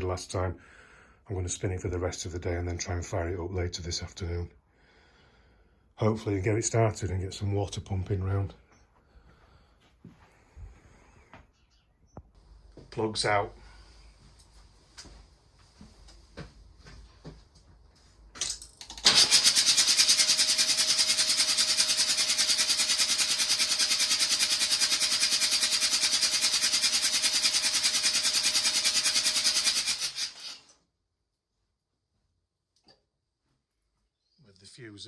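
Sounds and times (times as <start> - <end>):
starter cranking engine: 18.8 - 30.7.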